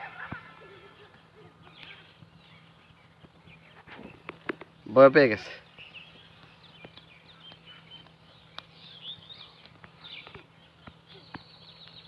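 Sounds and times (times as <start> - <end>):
distant birds chirping: 0.0 - 12.0
low steady hum: 0.0 - 12.0
light ticks: 6.4 - 8.8.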